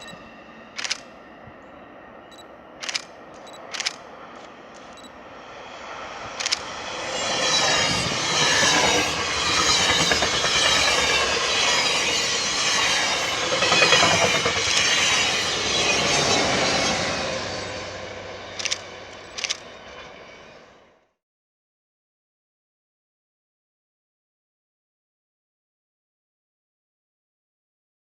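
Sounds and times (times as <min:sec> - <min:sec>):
train passing: 0:00.0 - 0:21.2
wheels clicking over rail joints: 0:00.8 - 0:01.1, 0:18.5 - 0:20.1.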